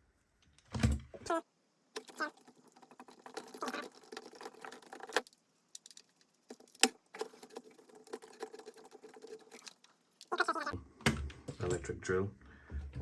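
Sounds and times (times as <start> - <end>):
plastic parts clicking and rattling: 2.0 - 10.4.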